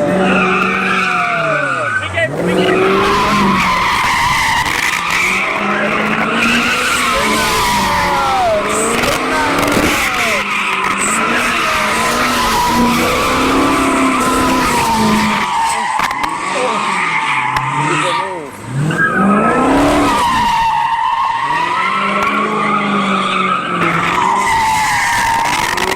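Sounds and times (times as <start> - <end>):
high-revving car engine: 0.0 - 25.9
tyres squealing: 0.0 - 25.9.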